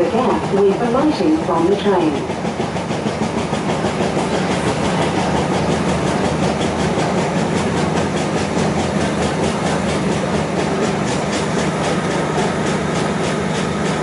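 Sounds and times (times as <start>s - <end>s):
train rumbling and rattling: 0.0s - 14.0s.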